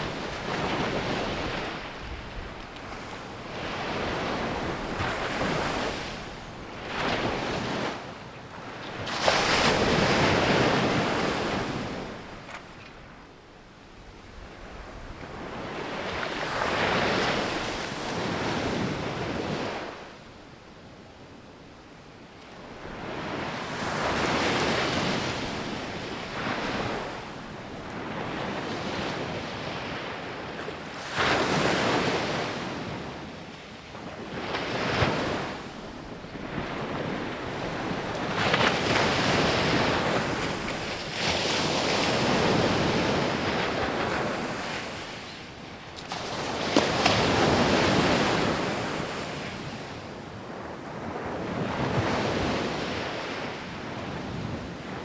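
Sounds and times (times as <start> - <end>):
sea waves breaking on beach: 34.2 - 50.0.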